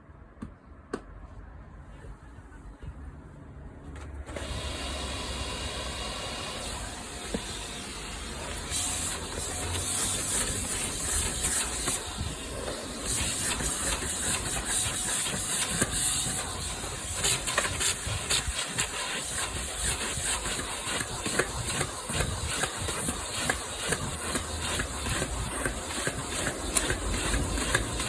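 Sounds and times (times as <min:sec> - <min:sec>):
vacuum cleaner hissing: 0:04.3 - 0:28.0
nozzle clicks and scrapes: 0:08.7 - 0:28.0.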